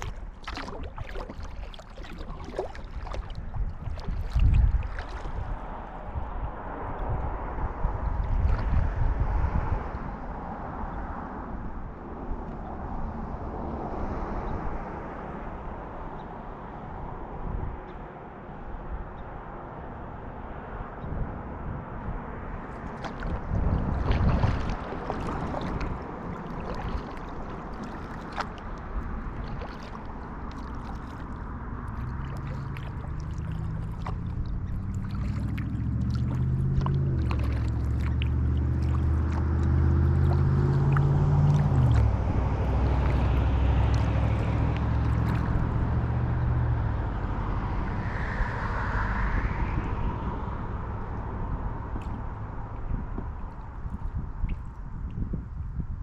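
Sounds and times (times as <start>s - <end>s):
paddle splashing: 0.0s - 7.0s, 8.0s - 9.1s, 22.5s - 47.4s
water sloshing and dripping: 0.0s - 9.9s, 22.5s - 46.8s, 51.2s - 55.2s
low engine drone: 0.0s - 54.9s.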